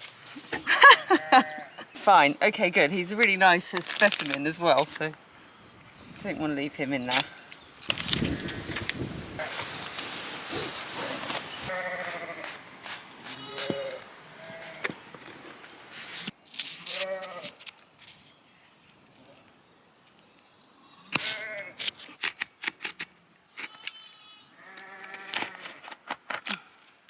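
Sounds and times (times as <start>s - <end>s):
sheep bleating: 11.7s - 12.4s, 13.3s - 14.8s, 23.8s - 25.6s.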